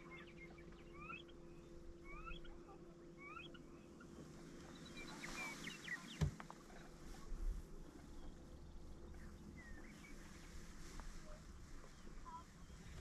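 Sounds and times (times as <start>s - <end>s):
bird chirping: 0.0s - 6.9s, 8.0s - 10.7s
faint steady hum: 0.0s - 13.0s.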